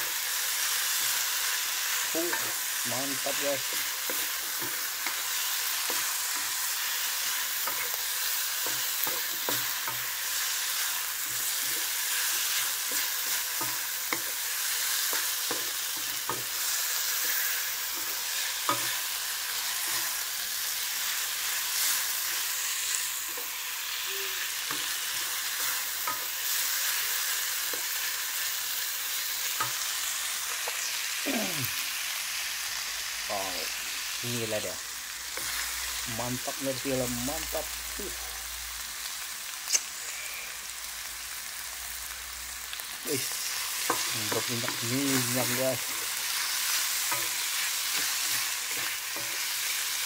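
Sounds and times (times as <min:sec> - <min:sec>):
food sizzling in oil: 0:00.0 - 0:50.0
spatula scraping a wok: 0:00.6 - 0:23.7.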